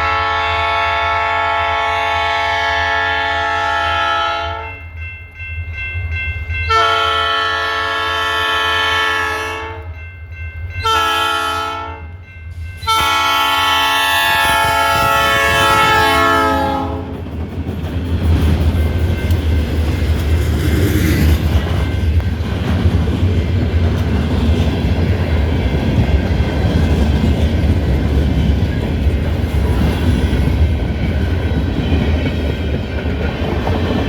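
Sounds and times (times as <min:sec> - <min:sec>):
locomotive air horn blasts: 0:00.0 - 0:04.7, 0:06.7 - 0:10.0, 0:10.8 - 0:12.1, 0:12.8 - 0:17.1.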